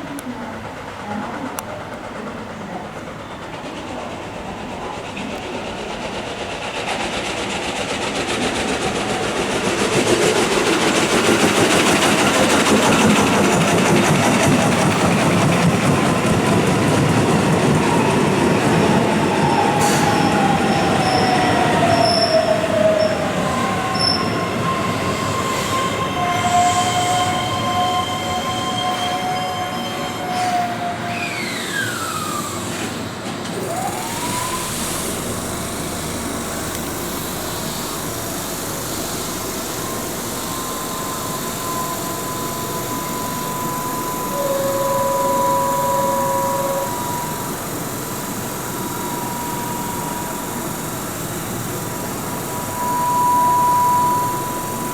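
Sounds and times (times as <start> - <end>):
train wheels rumbling on rail: 0.0 - 54.9
falling whistling tones: 17.8 - 32.7, 37.6 - 54.9
high-pitched wheel squeals: 17.8 - 32.8, 37.5 - 54.9.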